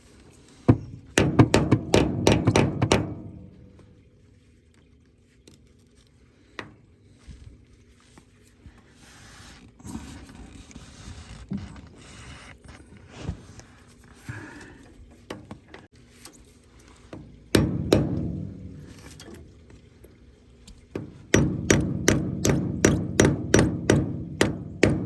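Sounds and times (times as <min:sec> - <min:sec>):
loud metal strikes: 0:17.6 - 0:19.2.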